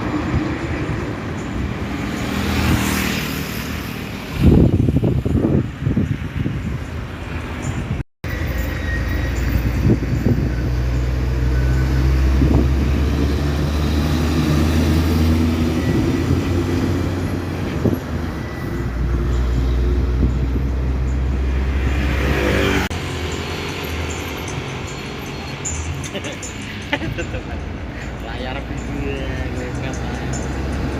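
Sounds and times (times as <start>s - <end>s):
diesel truck engine drone: 0.0s - 30.9s
rising sweep: 8.3s - 27.2s.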